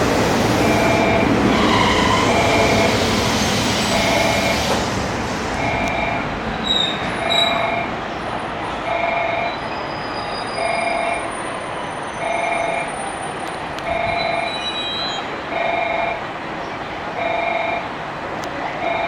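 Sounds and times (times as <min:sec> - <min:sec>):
train rumbling: 0:00.0 - 0:19.0
wheel squeals: 0:06.6 - 0:07.7, 0:09.5 - 0:13.0, 0:14.2 - 0:15.3.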